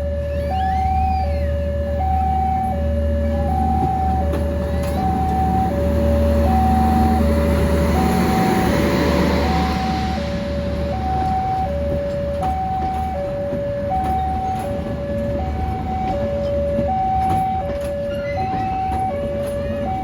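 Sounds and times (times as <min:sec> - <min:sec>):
rushing noise: 0:00.0 - 0:13.2
level crossing two-tone warning signal: 0:00.0 - 0:20.0
low engine rumble: 0:00.0 - 0:20.0.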